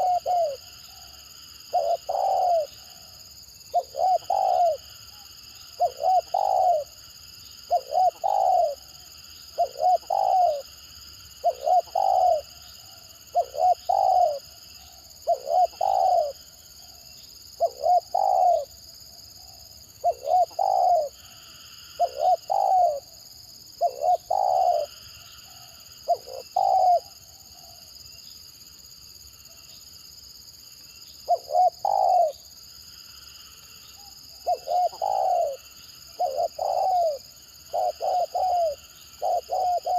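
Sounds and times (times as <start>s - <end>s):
dove cooing: 0.0s - 1.0s, 1.6s - 7.0s, 7.7s - 10.7s, 11.4s - 17.0s, 17.6s - 18.8s, 19.4s - 23.1s, 23.8s - 27.8s, 31.3s - 32.4s, 34.0s - 39.9s.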